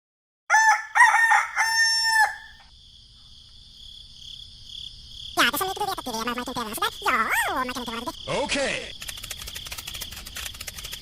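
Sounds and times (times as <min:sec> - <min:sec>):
rooster crowing: 0:00.5 - 0:02.7
crickets chirring: 0:00.5 - 0:11.0.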